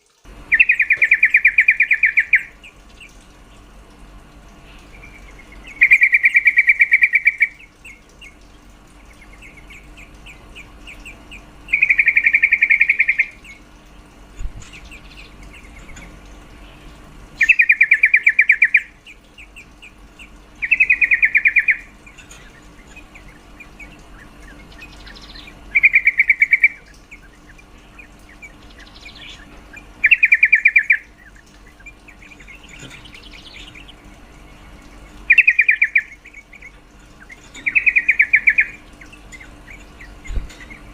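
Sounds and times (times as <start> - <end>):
faint bird chirps: 0.5 - 3.6, 4.6 - 13.7, 14.6 - 40.9.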